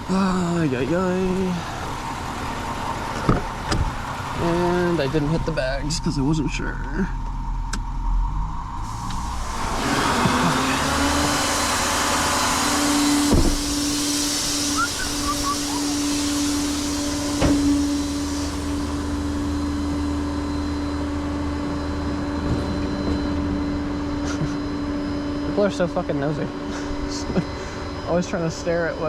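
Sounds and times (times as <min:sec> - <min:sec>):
hydraulic pump whining: 0:00.0 - 0:05.6, 0:08.8 - 0:28.9
hiss: 0:08.8 - 0:19.8.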